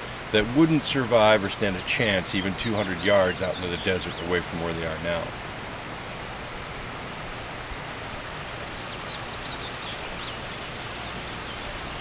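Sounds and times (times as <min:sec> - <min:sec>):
small birds chirping: 0:00.0 - 0:05.4, 0:08.1 - 0:12.0
outdoor background hiss: 0:00.0 - 0:12.0.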